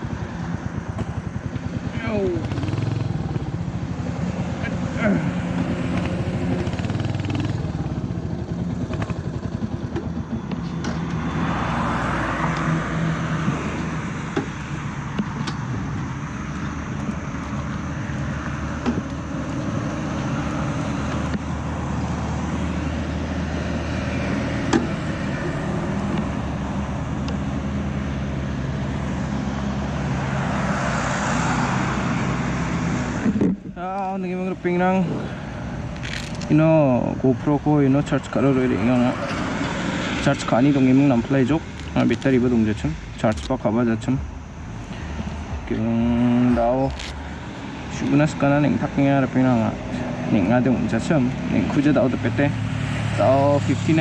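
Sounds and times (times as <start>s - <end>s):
motorcycle engine running: 0.0s - 11.7s
wind and road noise: 0.0s - 54.0s.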